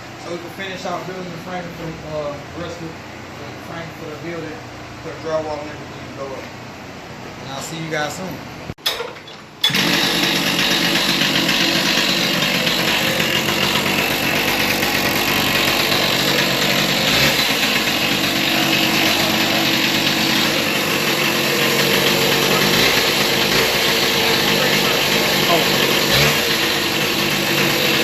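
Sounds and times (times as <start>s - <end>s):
small engine running: 9.6s - 28.0s.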